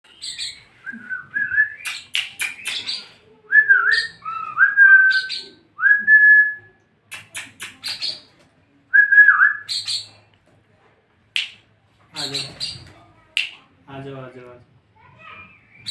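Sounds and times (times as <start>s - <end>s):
harsh bird chirps: 0.1s - 0.7s, 1.7s - 3.2s, 9.6s - 10.2s, 12.2s - 13.6s, 15.3s - 15.9s
birds whistling: 0.1s - 6.0s, 7.1s - 8.3s, 9.2s - 10.2s, 15.3s - 15.9s.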